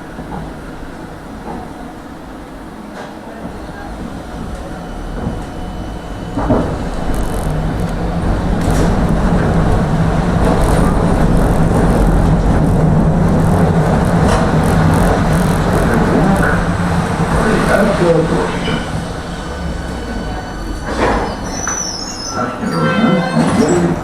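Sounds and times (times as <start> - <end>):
tram wheels rumbling on rails: 0.0 - 24.0
low motor hum: 3.4 - 21.4.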